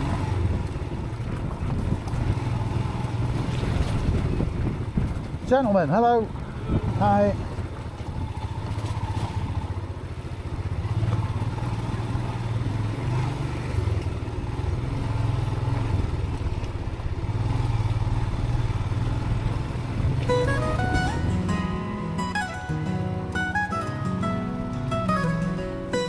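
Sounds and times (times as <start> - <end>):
motorcycle engine running: 6.3 - 26.0.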